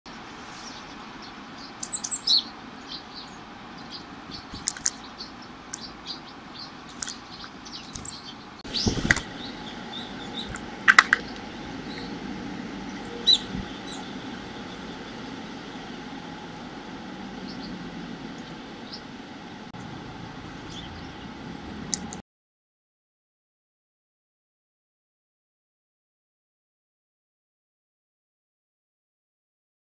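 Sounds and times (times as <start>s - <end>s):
high bird chirps: 0.1s - 16.1s, 19.8s - 22.1s
steady background noise: 0.1s - 22.2s
wings flapping: 3.9s - 5.1s, 6.9s - 11.7s, 12.9s - 14.4s.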